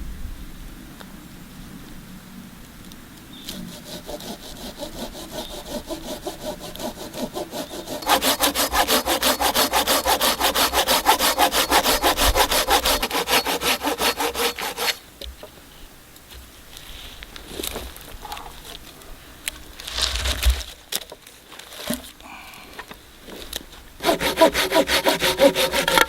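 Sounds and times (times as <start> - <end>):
hand saw cutting wood: 3.5 - 15.0, 24.0 - 26.0.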